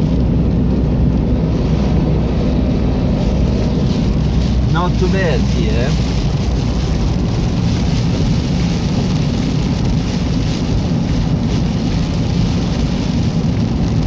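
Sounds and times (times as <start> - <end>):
rain on a car: 0.0 - 14.0
tyres rumbling on wet road: 0.0 - 14.0.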